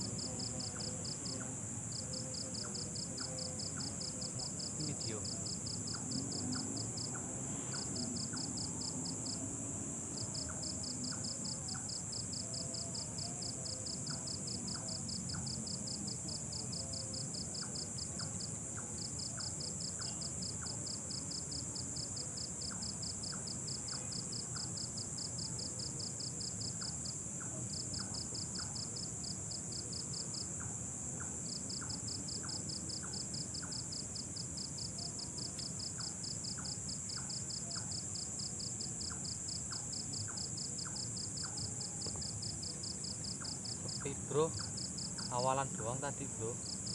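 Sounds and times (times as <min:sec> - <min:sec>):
cricket trill: 0:00.0 - 0:46.9
faint regular ticks: 0:35.4 - 0:38.0.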